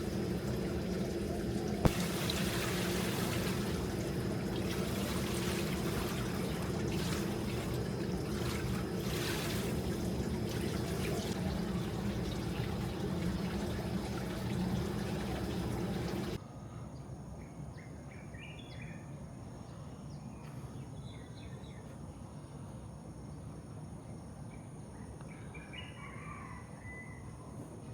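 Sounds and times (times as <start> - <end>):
birds chirping: 0.0 - 16.4
running water rushing: 0.0 - 16.4.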